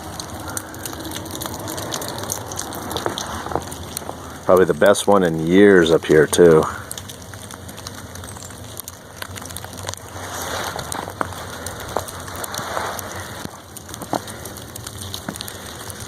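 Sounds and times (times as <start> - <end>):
footsteps crunching in wet snow: 0.0 - 4.4, 9.7 - 16.0
light ticks and patters: 0.0 - 16.0.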